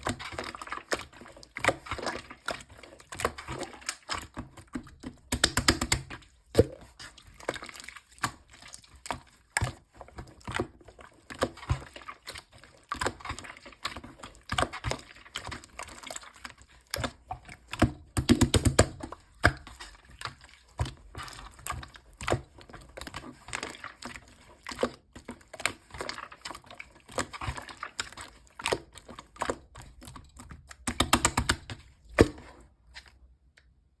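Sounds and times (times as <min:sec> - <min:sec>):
slime clicking and popping: 0:05.3 - 0:06.7, 0:30.8 - 0:31.7.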